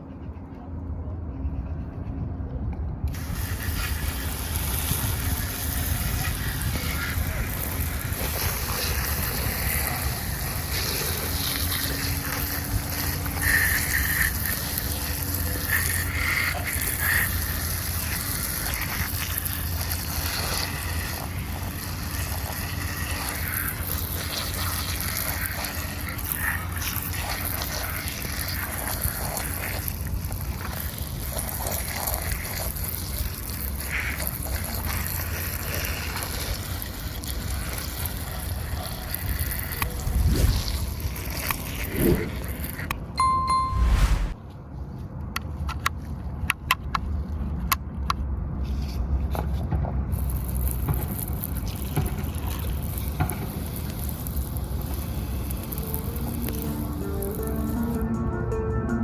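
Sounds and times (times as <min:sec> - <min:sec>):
steady low hum: 0:39.8 - 0:44.4.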